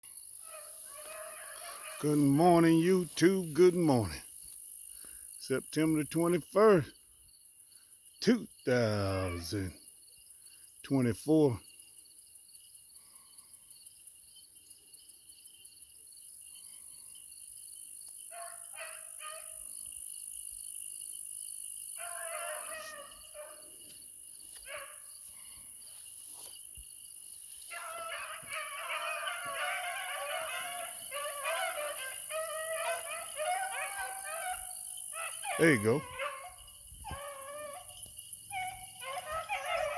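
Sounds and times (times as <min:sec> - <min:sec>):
insect chirring: 0:00.0 - 0:39.9
beagles baying: 0:00.4 - 0:04.2, 0:08.7 - 0:09.7, 0:18.3 - 0:19.7, 0:22.0 - 0:26.0, 0:27.6 - 0:39.9.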